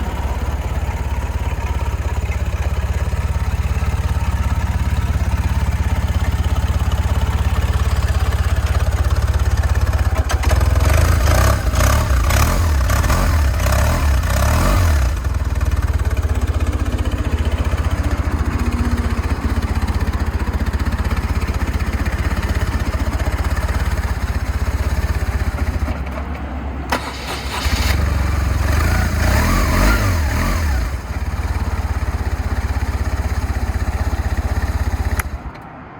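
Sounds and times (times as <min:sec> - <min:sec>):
motorcycle engine idling: 0:00.0 - 0:35.6
engine revving: 0:10.1 - 0:16.6, 0:26.9 - 0:31.3.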